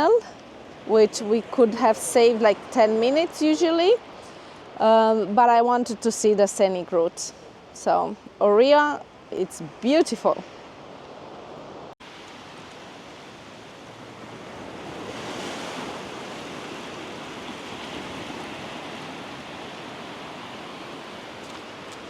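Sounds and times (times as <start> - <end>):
surf washing on a beach: 9.2 - 22.0.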